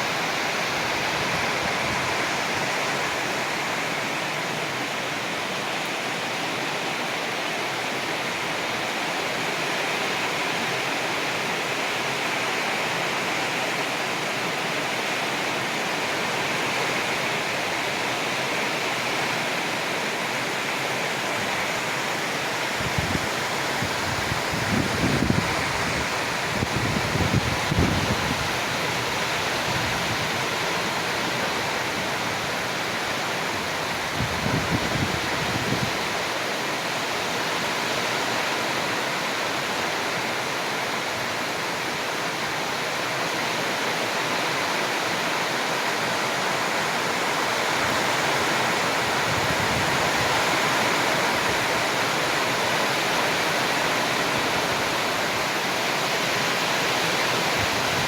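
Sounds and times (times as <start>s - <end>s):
heavy rain falling: 0.0s - 58.0s
wind buffeting microphone: 22.8s - 28.6s, 34.1s - 36.1s.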